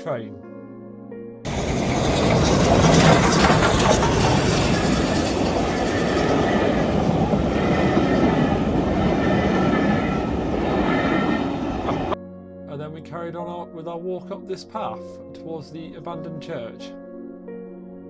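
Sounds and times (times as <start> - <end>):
steam train rushing past: 1.5 - 12.2.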